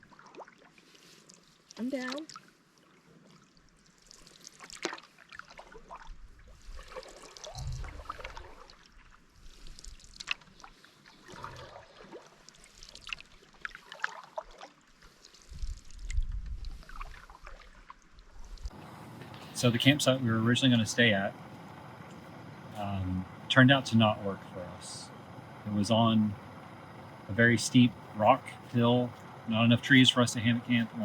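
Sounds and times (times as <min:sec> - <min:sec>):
water splashing and trickling: 0:00.0 - 0:18.8.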